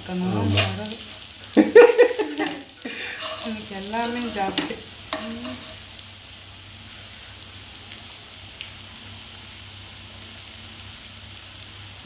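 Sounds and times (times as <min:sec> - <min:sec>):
faint crackles: 0:00.0 - 0:06.1
quiet frying sizzle: 0:00.0 - 0:12.0.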